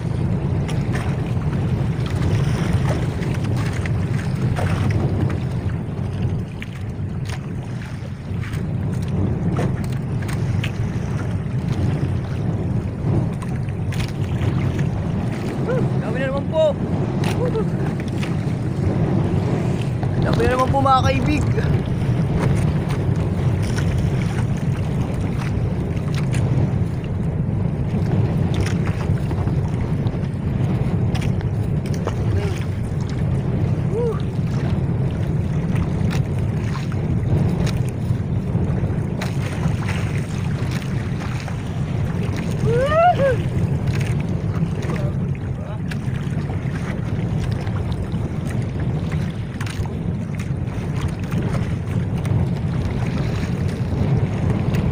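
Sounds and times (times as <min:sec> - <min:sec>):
boat engine running: 0:00.0 - 0:54.9
water rushing along hull: 0:00.0 - 0:54.9
wind on microphone: 0:00.0 - 0:54.9.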